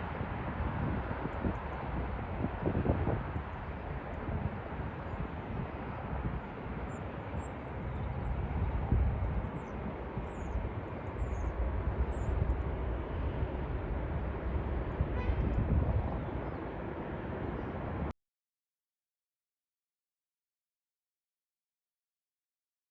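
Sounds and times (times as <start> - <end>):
jet engine noise: 0.0 - 18.1
wind buffeting microphone: 0.0 - 18.1
small birds chirping: 6.9 - 13.9.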